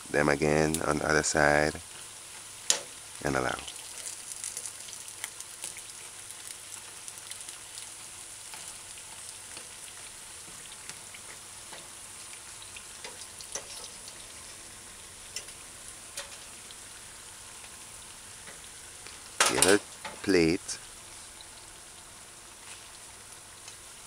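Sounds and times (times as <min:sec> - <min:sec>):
fritters sizzling in oil: 0:00.0 - 0:24.0
oil crackling and popping: 0:01.8 - 0:24.0.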